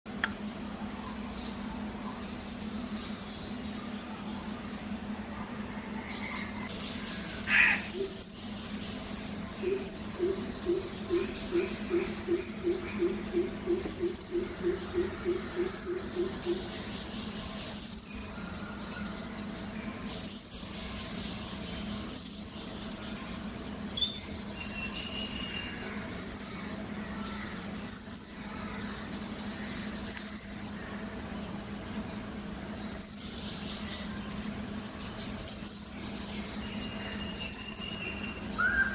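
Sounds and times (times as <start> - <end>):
bird calling: 5.3 - 8.6, 9.5 - 16.9, 35.3 - 38.9.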